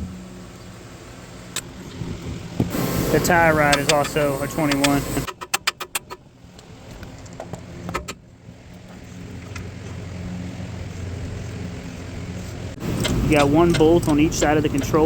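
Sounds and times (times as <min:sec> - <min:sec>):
low hum: 0:00.0 - 0:05.3.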